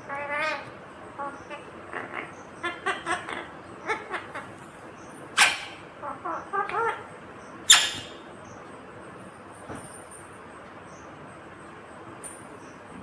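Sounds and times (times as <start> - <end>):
parakeet chattering: 0.0 - 4.6, 5.3 - 8.2
parakeet shrill screeches: 5.4 - 5.8, 7.7 - 8.2.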